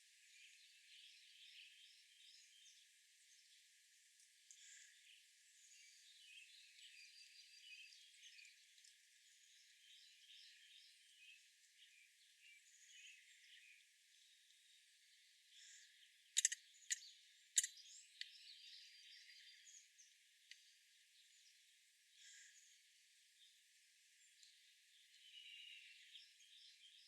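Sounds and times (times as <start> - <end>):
small birds chirping: 0.0 - 27.0
sharp short clicks: 16.4 - 17.0.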